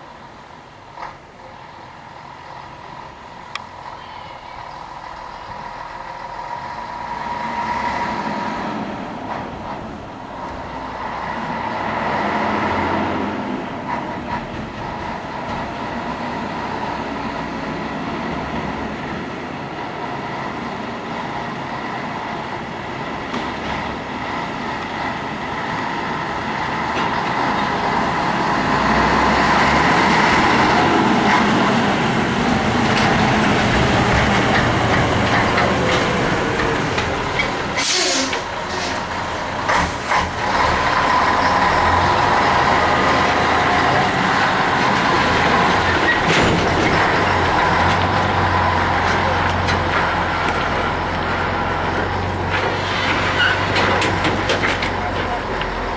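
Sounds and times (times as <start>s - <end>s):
truck diesel engine running: 1.4s - 13.2s, 14.3s - 55.9s
air brake hisses: 37.8s - 39.1s.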